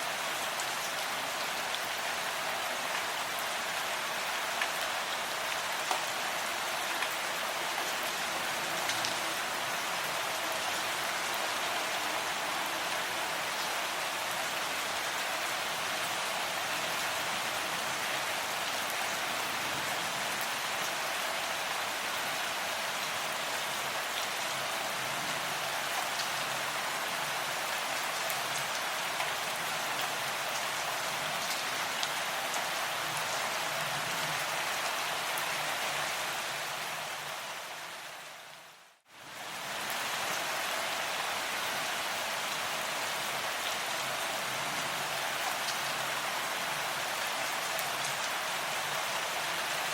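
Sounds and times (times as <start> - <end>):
steady rain hiss: 0.0 - 49.9.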